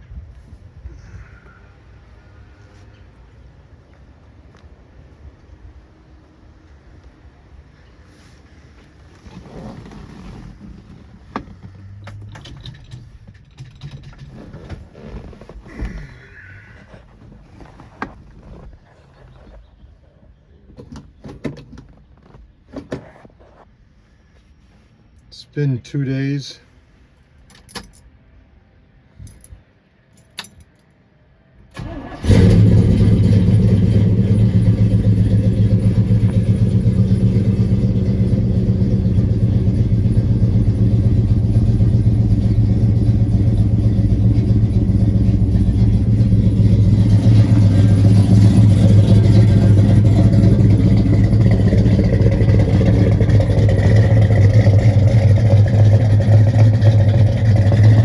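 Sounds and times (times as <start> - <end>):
engine cranking and idling: 8.5 - 19.8, 31.7 - 58.0.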